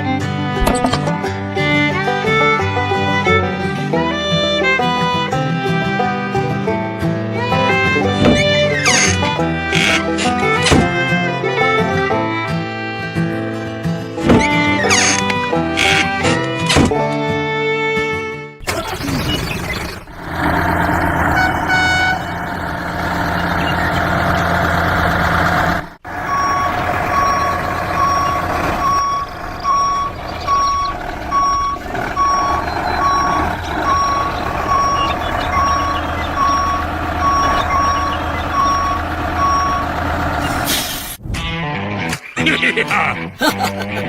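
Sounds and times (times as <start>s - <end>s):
truck engine running: 18.6s - 41.2s
reversing alarm beeping: 26.1s - 40.7s.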